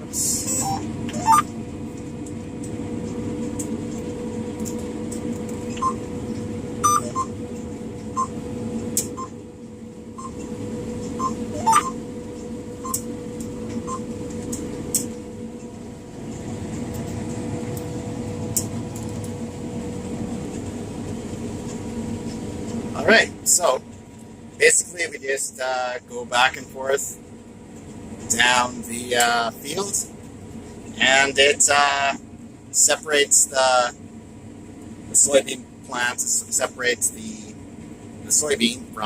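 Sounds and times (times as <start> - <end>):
combine harvester engine drone: 0.0 - 39.0
short electronic beeps: 0.4 - 1.5, 5.7 - 6.0, 6.8 - 7.4, 8.1 - 8.4, 9.1 - 9.4, 10.2 - 10.4, 11.2 - 12.0, 12.8 - 13.0.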